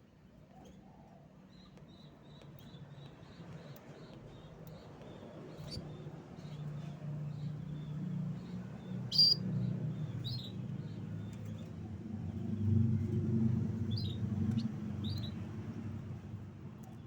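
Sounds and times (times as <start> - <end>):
canary chirping: 1.8 - 11.7, 13.8 - 15.4.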